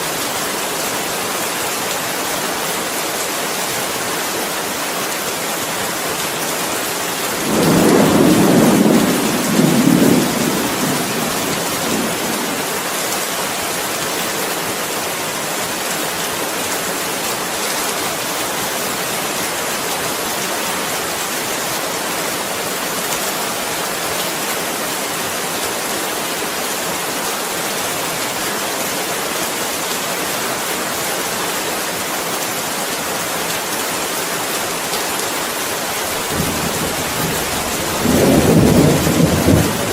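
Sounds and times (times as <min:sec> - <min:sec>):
steady rain falling: 0:00.0 - 0:39.9
thunder rolling: 0:07.4 - 0:12.6, 0:36.2 - 0:39.9.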